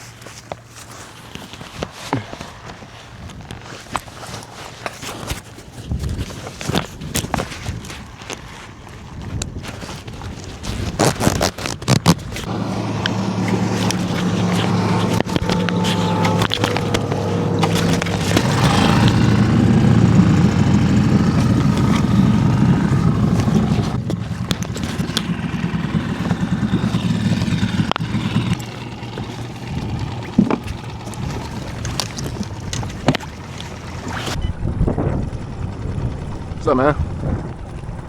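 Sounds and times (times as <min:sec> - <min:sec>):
wind noise: 0:05.7 - 0:28.6, 0:29.2 - 0:38.0
boat motor running: 0:06.5 - 0:38.0
rushing water: 0:12.4 - 0:34.4.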